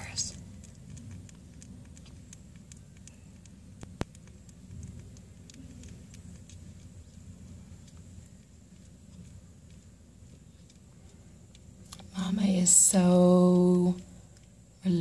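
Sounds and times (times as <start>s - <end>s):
kittens suckling: 0.0s - 14.8s.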